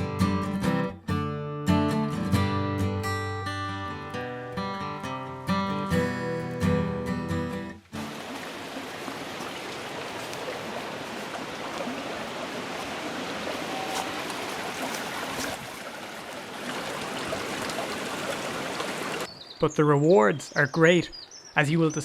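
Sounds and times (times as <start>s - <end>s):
acoustic guitar strumming: 0.0s - 8.2s
stream rushing: 7.8s - 19.4s.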